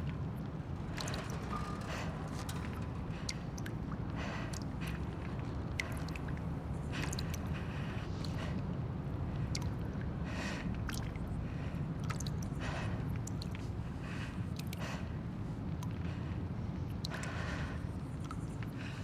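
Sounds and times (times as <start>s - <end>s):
small clicks and ticks: 0.1s - 7.4s.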